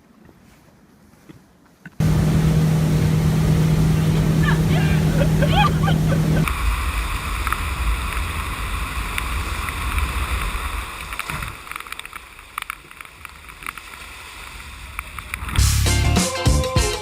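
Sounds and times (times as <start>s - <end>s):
wind rumble on microphone: 2.0s - 11.7s
rushing water: 2.0s - 15.6s.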